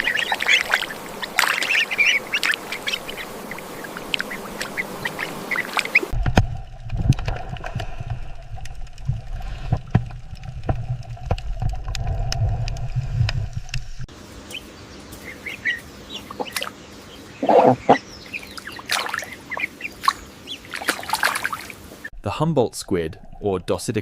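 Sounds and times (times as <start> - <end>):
low rumble with clicks: 6.1 - 14.1
chickens clucking: 14.5 - 20.7.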